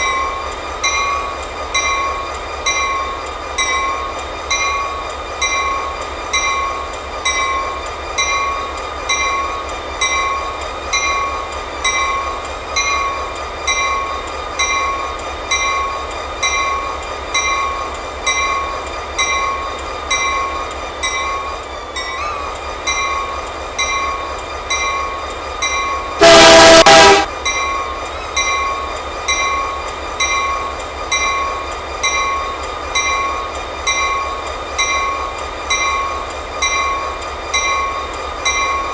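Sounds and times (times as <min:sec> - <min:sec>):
train rumbling past: 0:00.0 - 0:38.9
locomotive horn blast: 0:26.2 - 0:27.3.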